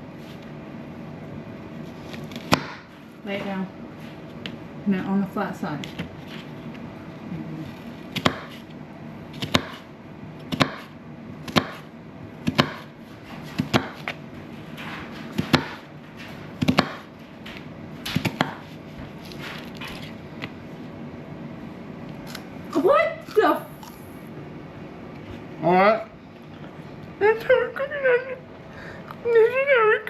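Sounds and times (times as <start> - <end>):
knife chopping on cutting board: 2.3 - 2.9, 8.1 - 8.6, 9.4 - 9.9, 10.5 - 14.2, 15.3 - 15.9, 16.6 - 17.1, 18.1 - 18.7.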